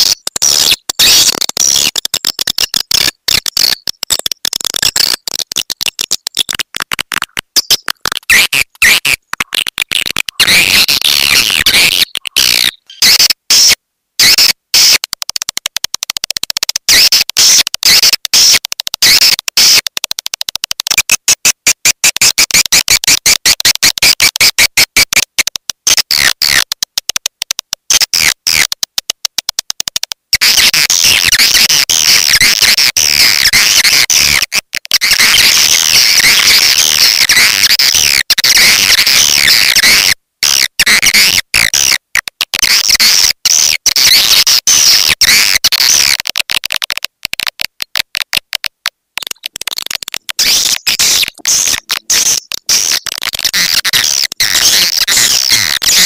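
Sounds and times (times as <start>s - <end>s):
high twittering bird chirps: 7.6s - 9.0s, 10.4s - 13.2s, 49.2s - 56.0s.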